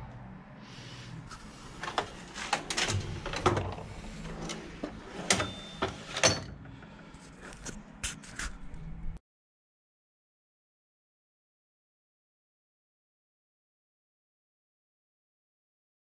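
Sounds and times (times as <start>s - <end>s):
low steady hum: 0.0s - 9.2s.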